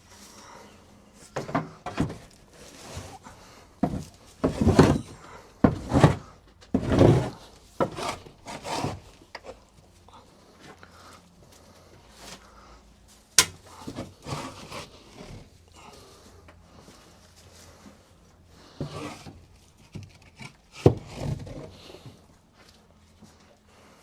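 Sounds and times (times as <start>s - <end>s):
scraping and knocking on wood: 1.2s - 9.6s, 13.4s - 15.5s, 18.6s - 22.2s.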